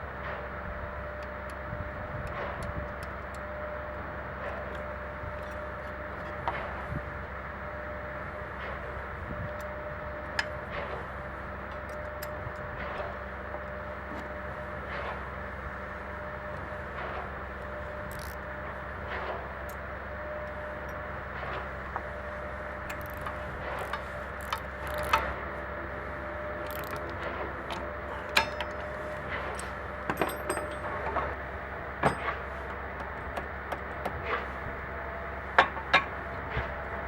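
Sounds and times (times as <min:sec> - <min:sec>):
steady background hum: 0:00.0 - 0:37.0
metallic clinks and knocks: 0:28.2 - 0:31.4.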